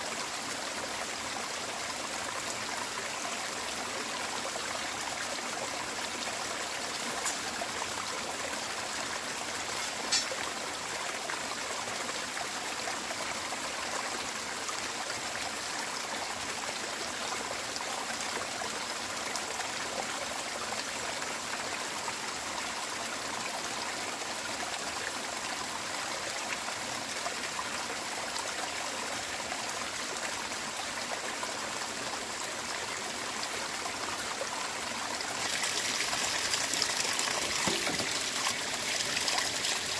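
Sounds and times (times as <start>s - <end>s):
running water: 0.0s - 16.9s, 29.1s - 39.9s.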